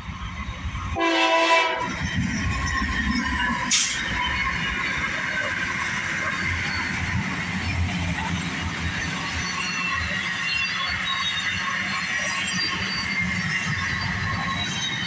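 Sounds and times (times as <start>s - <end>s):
freight train wheels on rails: 0.0s - 15.0s
locomotive air horn blast: 1.0s - 1.9s, 3.6s - 4.0s.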